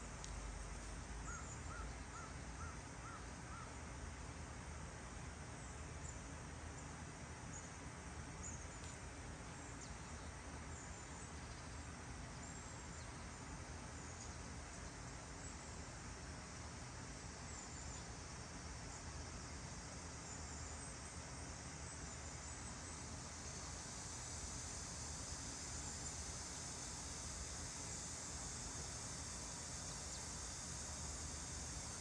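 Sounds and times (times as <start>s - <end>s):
background hiss: 0.0s - 32.0s
faint bird calls: 1.2s - 3.8s.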